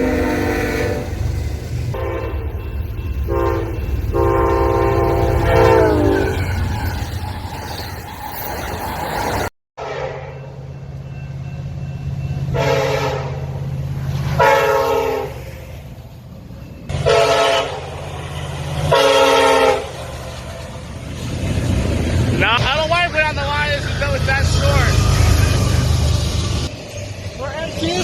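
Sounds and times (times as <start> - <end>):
locomotive air horn blasts: 0.0 - 1.3, 1.9 - 2.6, 3.3 - 6.5, 9.8 - 10.5, 12.5 - 13.6, 14.4 - 15.4, 16.9 - 18.0, 18.8 - 20.0
locomotive engine rumble: 0.0 - 9.4, 10.6 - 28.0.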